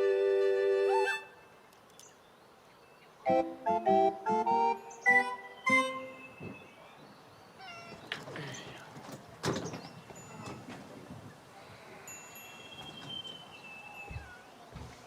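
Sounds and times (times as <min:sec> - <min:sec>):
cat meowing: 0:07.6 - 0:08.1, 0:14.0 - 0:14.6
faint high ringing tones: 0:12.0 - 0:14.4.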